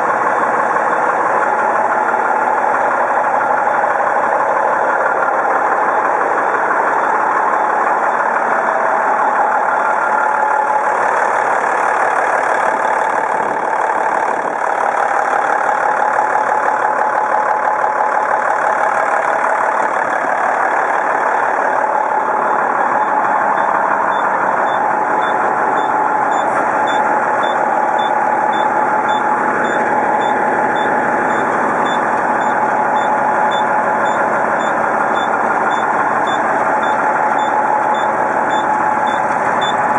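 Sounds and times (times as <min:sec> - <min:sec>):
heavy truck diesel engine running: 0:00.0 - 0:39.9
backup alarm beeping: 0:23.0 - 0:39.8.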